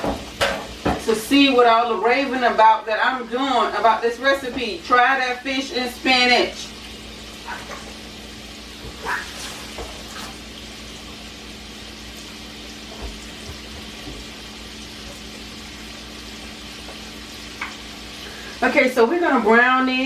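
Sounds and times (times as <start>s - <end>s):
oil sizzling in a frying pan: 0.0s - 20.0s.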